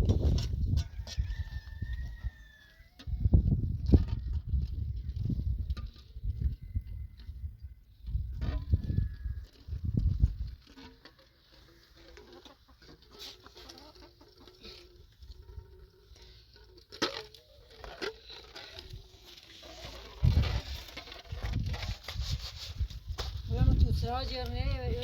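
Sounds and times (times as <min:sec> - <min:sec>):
chickens clucking: 0:08.4 - 0:16.8.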